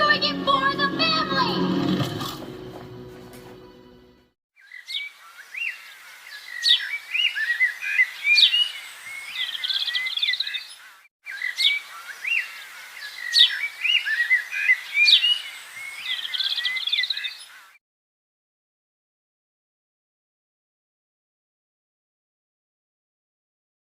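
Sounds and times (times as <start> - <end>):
small birds chirping and whistling: 4.6 - 17.8.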